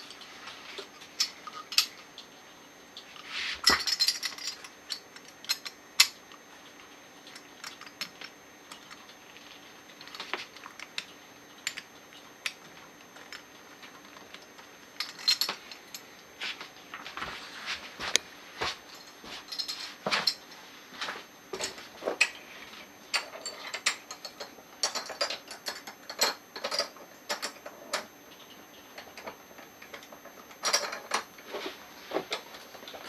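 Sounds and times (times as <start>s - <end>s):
metal parts clinking on surface: 3.6s - 6.1s, 15.0s - 15.6s, 23.1s - 28.1s, 30.6s - 31.3s.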